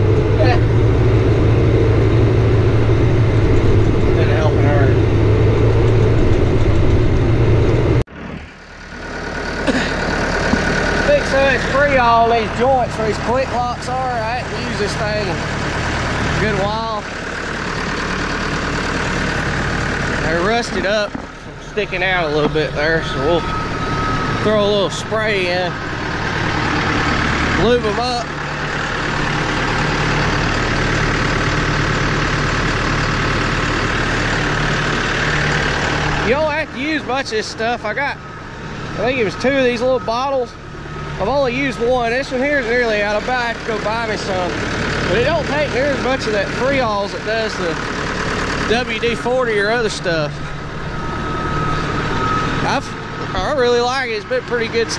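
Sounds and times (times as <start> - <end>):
tractor engine idling: 0.0 - 54.9
faint steady whine: 48.9 - 54.9.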